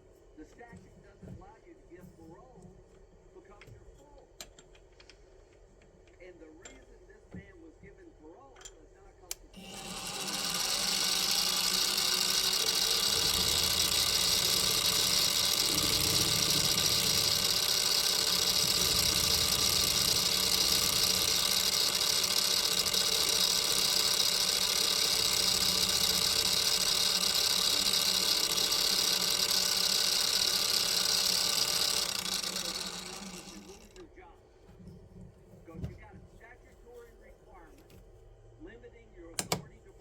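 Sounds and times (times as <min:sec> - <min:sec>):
machine motor hum with hiss: 0:09.6 - 0:33.7
machine winding down: 0:09.6 - 0:34.1.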